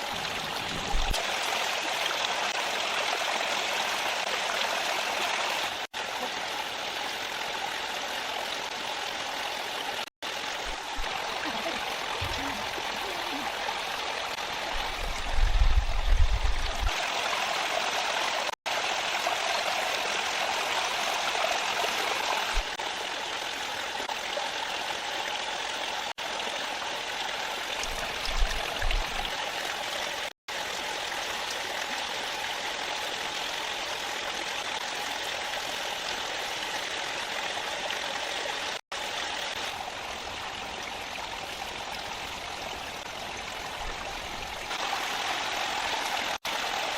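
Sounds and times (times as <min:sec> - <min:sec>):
stream flowing: 0:00.0 - 0:46.9
wind buffeting microphone: 0:14.7 - 0:16.9.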